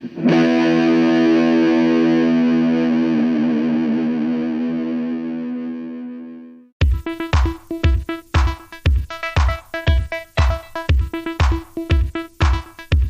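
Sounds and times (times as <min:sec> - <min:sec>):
distorted electric guitar chord: 0:00.0 - 0:06.7.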